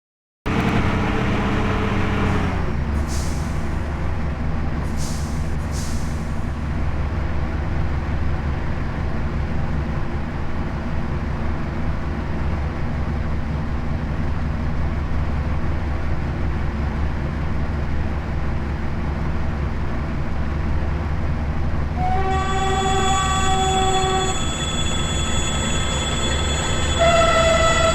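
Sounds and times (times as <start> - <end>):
diesel locomotive engine running: 0.5 - 27.9
air brake hisses: 3.0 - 3.8, 4.9 - 6.6, 22.0 - 27.9.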